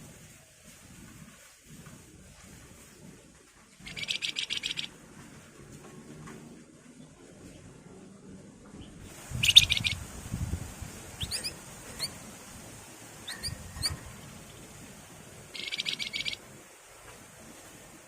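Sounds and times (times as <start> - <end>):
buzzy rattling birdsong: 3.7 - 4.9, 8.8 - 10.0, 11.2 - 12.2, 13.2 - 16.4
thin rising whistles: 11.2 - 12.2, 13.2 - 14.0.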